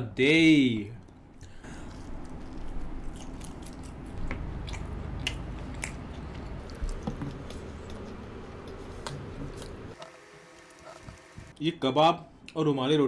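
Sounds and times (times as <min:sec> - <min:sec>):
close chewing with wet smacks: 0:01.0 - 0:09.8.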